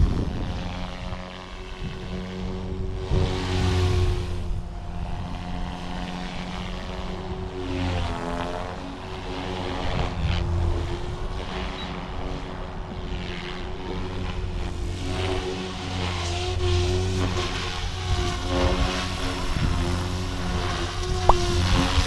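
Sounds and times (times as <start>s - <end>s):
rc helicopter motor whine: 0.0s - 22.0s.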